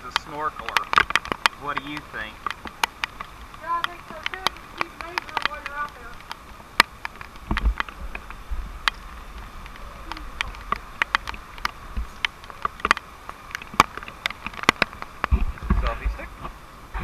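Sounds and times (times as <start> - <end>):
low wind rumble: 0.0 - 17.0
steady rain: 0.0 - 17.0
water drops tapping: 0.1 - 15.9.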